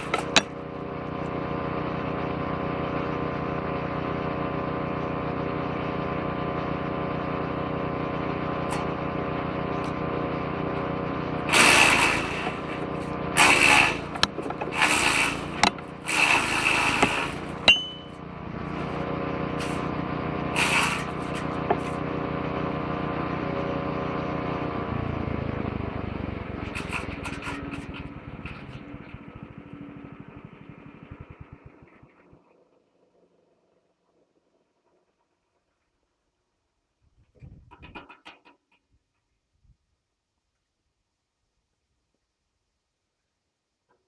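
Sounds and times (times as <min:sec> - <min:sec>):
branches grinding in shredder: 0:00.0 - 0:24.8
woodchipper engine running: 0:00.0 - 0:32.4.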